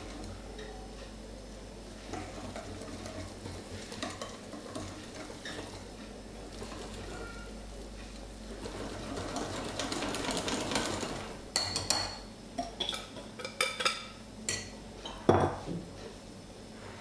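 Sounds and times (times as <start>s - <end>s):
utensil stirring thick batter: 0.0s - 0.8s, 1.8s - 12.0s
utensil clinking against bowl: 11.6s - 15.6s.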